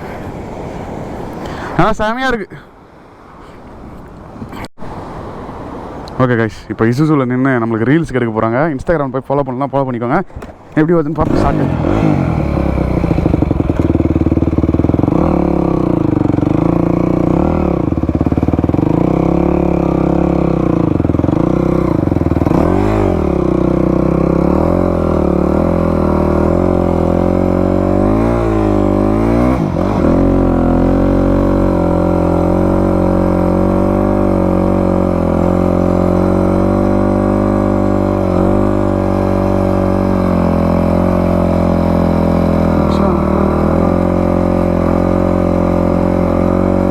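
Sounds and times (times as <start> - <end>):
dirt bike engine revving: 11.2 - 46.9.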